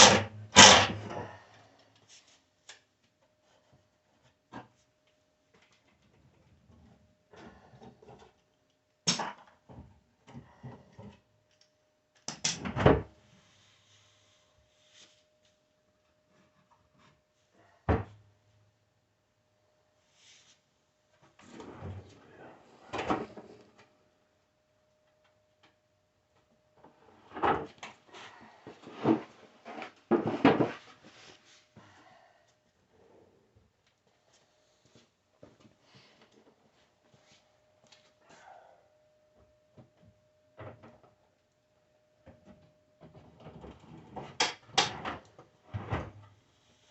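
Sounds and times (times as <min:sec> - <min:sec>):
faint steady hum: 0:00.0 - 0:46.9
wood knocking and scraping on wood: 0:28.8 - 0:31.1.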